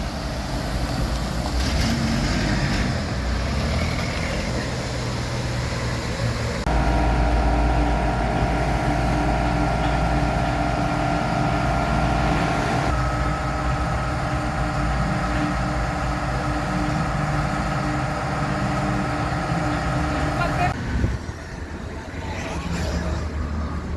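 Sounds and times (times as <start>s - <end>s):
car engine idling: 0.0s - 20.8s
steady whine: 6.6s - 20.8s.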